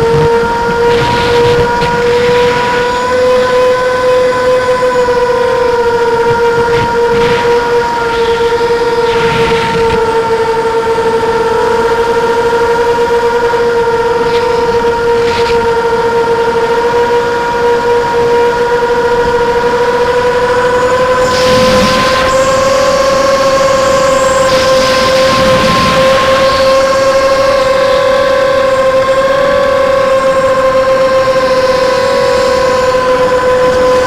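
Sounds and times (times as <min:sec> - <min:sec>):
drone propellers humming: 0:00.0 - 0:34.0
rush of air: 0:21.2 - 0:26.4.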